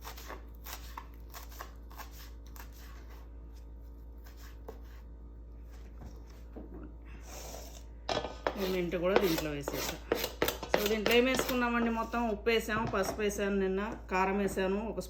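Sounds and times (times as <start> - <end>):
knife cutting mint: 0.0 - 3.3, 4.2 - 5.0, 8.4 - 12.0.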